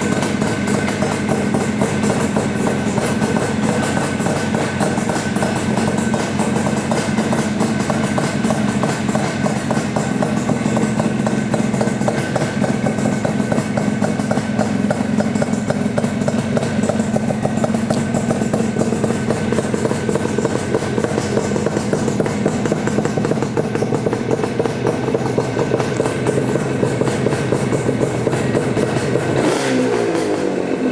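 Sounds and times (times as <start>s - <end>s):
two-stroke motorcycle engine running: 0.0s - 30.9s.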